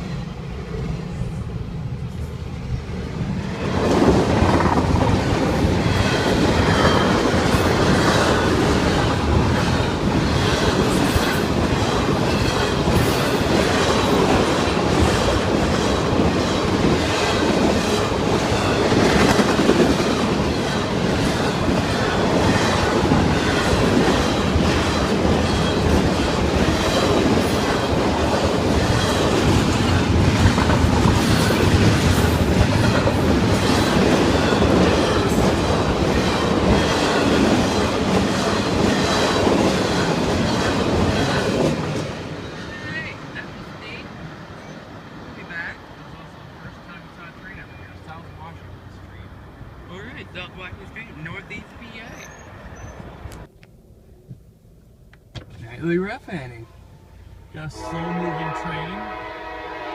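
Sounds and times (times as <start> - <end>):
train wheels clicking over rails: 2.0 - 43.4.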